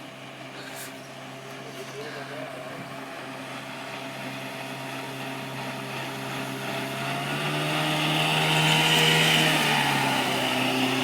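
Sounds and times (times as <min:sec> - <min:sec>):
motorboat engine: 0:00.0 - 0:11.0.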